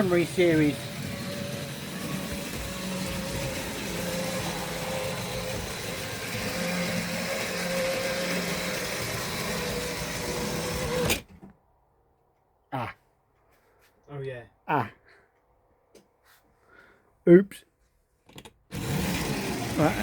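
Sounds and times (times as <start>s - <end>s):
model train motor whirring: 0.0s - 11.2s, 18.7s - 20.0s.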